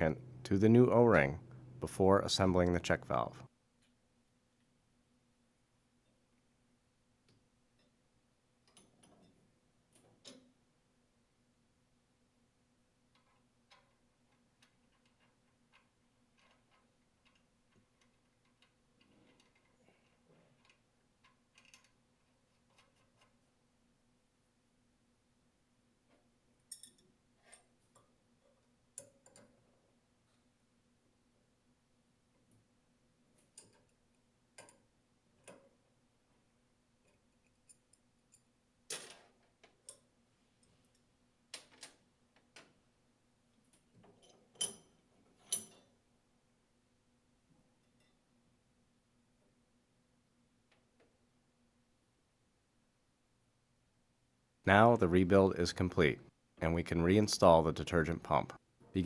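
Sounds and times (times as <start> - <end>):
small clicks and knocks of parts: 8.6 - 10.6, 13.0 - 23.6, 26.0 - 30.5, 32.4 - 42.9, 43.5 - 46.1.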